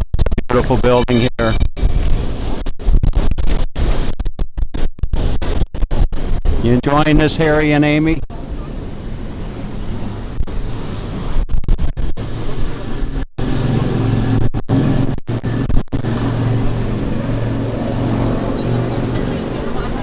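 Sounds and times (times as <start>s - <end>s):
electric tram rumbling: 13.5s - 20.0s.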